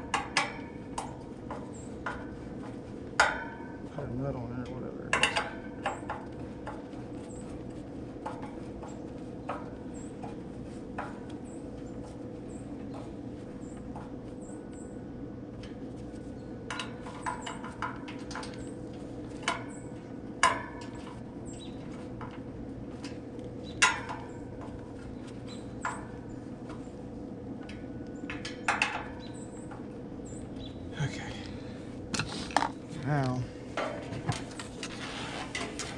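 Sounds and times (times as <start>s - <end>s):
steady background hum: 0.0s - 35.9s.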